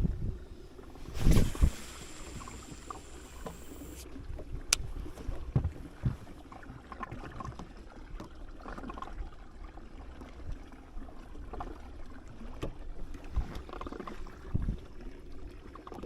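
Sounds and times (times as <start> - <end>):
low steady rumble: 0.0 - 6.4
water lapping against a boat: 0.0 - 16.0.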